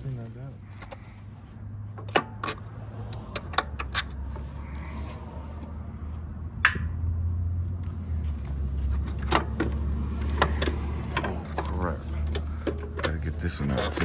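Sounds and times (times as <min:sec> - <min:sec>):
metal hand tools clinking: 0:13.0 - 0:14.0.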